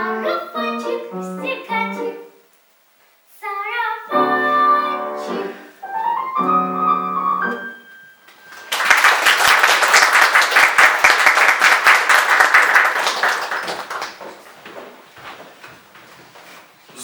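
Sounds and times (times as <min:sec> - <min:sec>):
audience applauding: 0:08.4 - 0:14.5.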